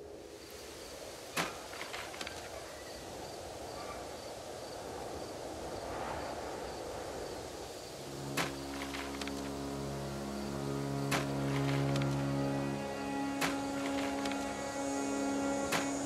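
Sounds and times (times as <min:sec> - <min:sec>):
insect chirping: 0:00.0 - 0:16.0
soft music: 0:08.0 - 0:16.0
hoe blade striking soil: 0:08.3 - 0:09.2, 0:11.1 - 0:12.1, 0:13.4 - 0:14.4, 0:15.7 - 0:16.0.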